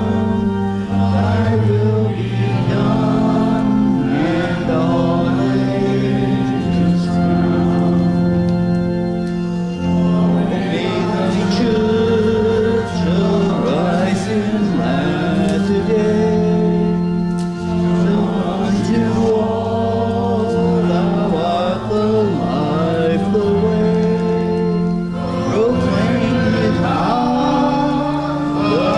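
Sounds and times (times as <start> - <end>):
congregation singing a hymn: 0.0 - 28.9
organ accompaniment: 0.0 - 28.9.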